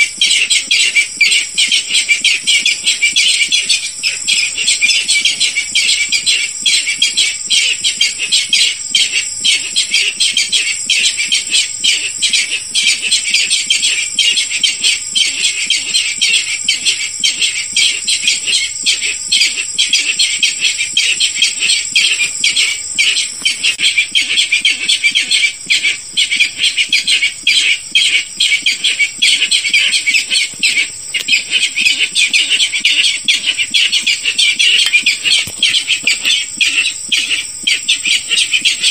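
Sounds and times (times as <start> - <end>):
rail bird calling harshly: 18.4 - 38.9.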